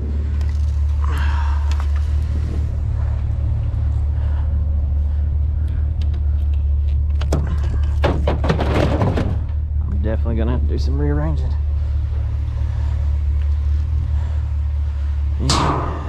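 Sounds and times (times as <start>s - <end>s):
truck engine idling: 0.0s - 16.0s
knocks and clatters of handling: 6.0s - 9.8s.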